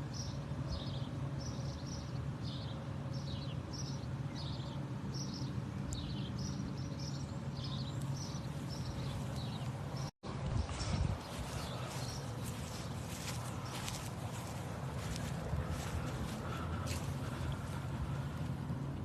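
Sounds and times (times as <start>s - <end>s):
birds chirping: 0.0s - 19.0s
steady low hum: 0.0s - 19.0s.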